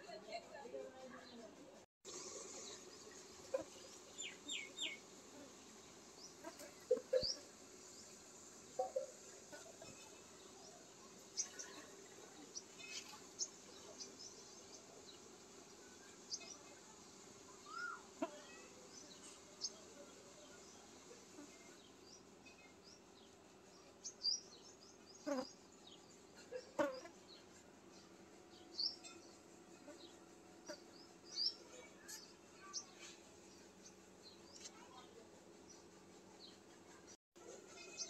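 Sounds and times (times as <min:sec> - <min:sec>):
small birds chirping: 0:02.6 - 0:08.2, 0:17.6 - 0:37.2.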